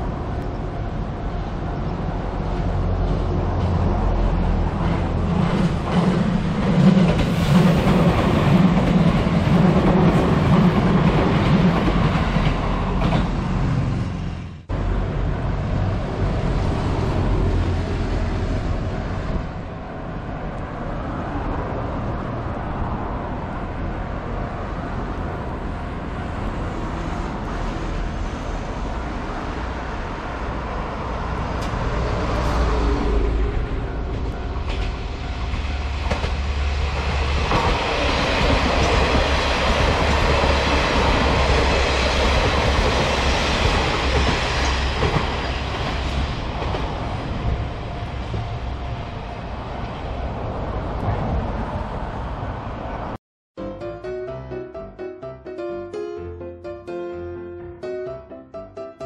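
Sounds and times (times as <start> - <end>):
electric train running on rails: 0.0 - 53.2
road traffic rushing: 0.0 - 53.2.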